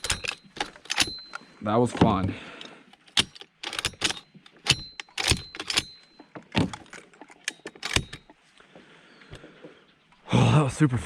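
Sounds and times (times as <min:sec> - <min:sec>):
gear clicking and knocking: 0:00.0 - 0:08.3.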